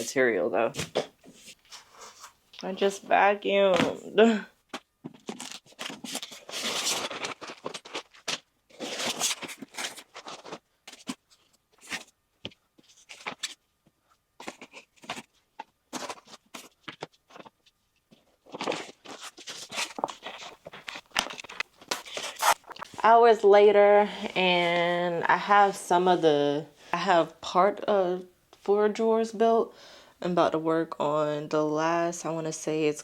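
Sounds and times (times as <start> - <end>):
cardboard scraping and rustling: 5.1 - 12.1, 14.4 - 22.9.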